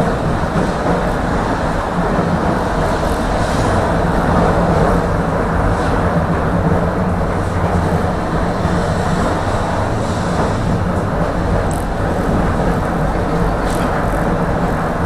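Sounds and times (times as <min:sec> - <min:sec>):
tram wheels rumbling on rails: 0:00.0 - 0:15.0
low motor hum: 0:05.2 - 0:15.0.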